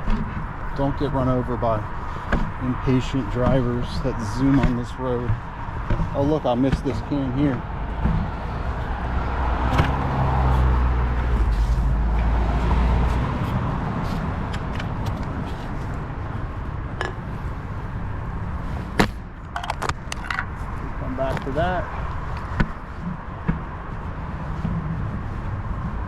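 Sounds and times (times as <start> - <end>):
car passing: 0.6 - 19.4
sharp clicks and knocks: 4.5 - 8.4, 18.9 - 20.5.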